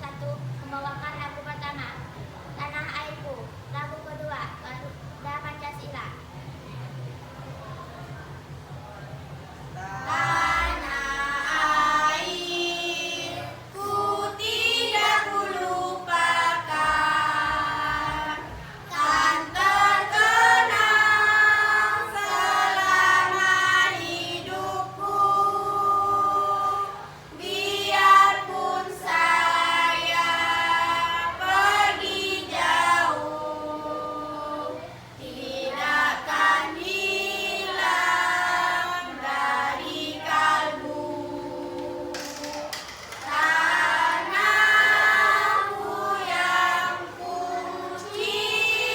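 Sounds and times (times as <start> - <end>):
children's choir singing: 9.8 - 48.9.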